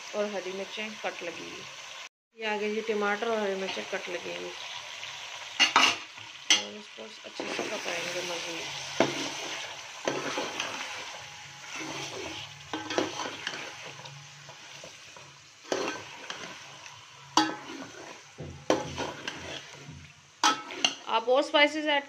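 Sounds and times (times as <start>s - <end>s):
food sizzling in hot oil: 0.0s - 22.0s
spoon stirring: 9.0s - 21.0s.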